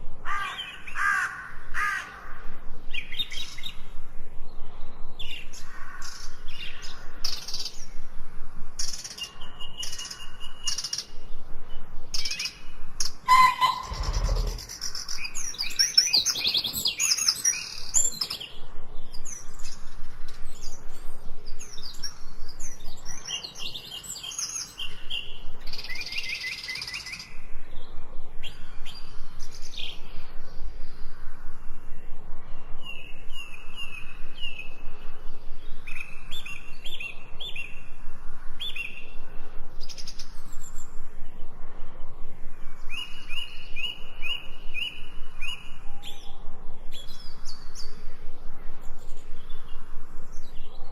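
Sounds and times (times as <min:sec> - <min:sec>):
songbirds chirping and singing: 0:00.0 - 0:50.9.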